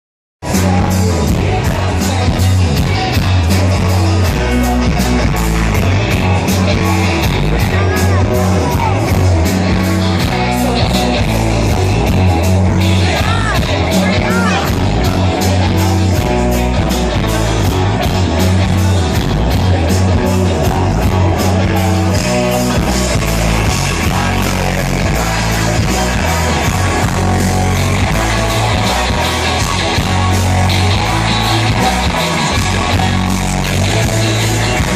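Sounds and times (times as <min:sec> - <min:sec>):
distorted electric guitar: 0:00.4 - 0:34.9
live rock band playing: 0:00.4 - 0:34.9
person singing: 0:00.4 - 0:34.9.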